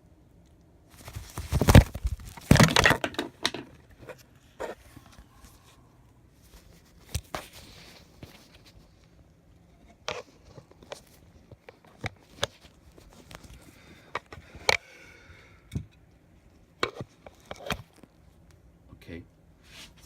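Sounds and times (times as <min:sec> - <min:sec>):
rustling and scuffling: 0:00.9 - 0:05.8, 0:06.4 - 0:09.2.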